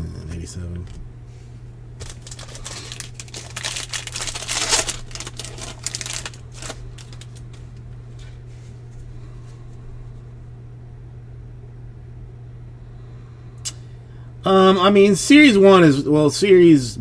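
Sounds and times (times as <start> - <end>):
steady low hum: 0.0 - 17.0
card pack wrappers crinkling: 2.0 - 9.2.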